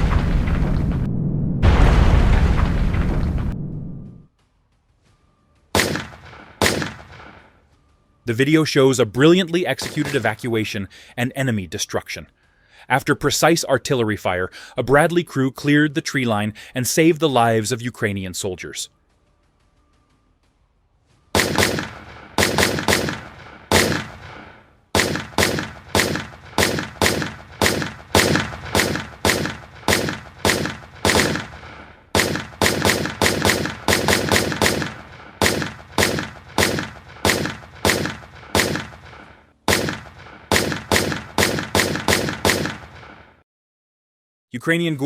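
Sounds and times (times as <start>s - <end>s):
chain gun firing single shots: 5.8s - 7.5s, 21.4s - 43.4s.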